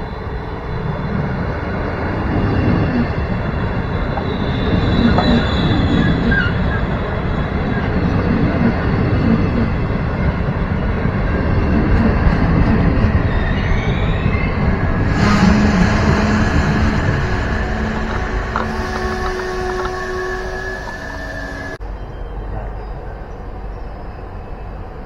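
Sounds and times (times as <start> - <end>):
train wheels rumbling on rails: 0.0 - 25.0
faint high wheel squeal: 13.2 - 23.1.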